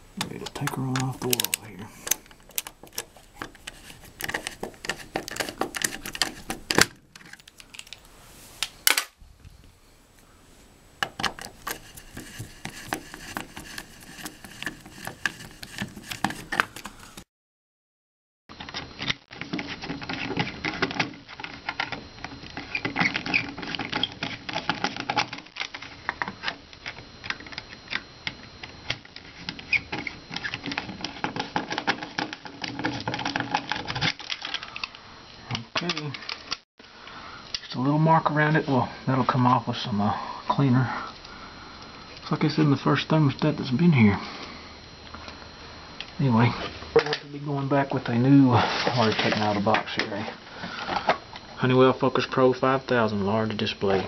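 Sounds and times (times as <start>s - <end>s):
clicks and rattles of a tool on plastic: 0.2s - 8.0s, 11.0s - 17.0s, 18.6s - 36.6s.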